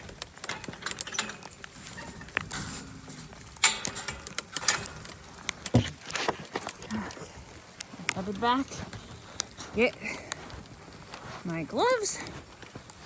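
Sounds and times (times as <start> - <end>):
clicks and knocks of closing: 0.0 - 6.9.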